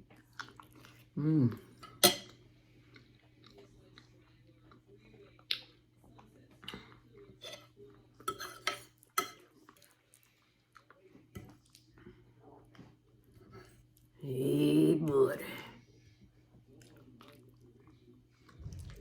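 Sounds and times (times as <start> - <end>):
person chewing food: 0.0 - 1.8, 2.6 - 7.2, 16.5 - 19.0.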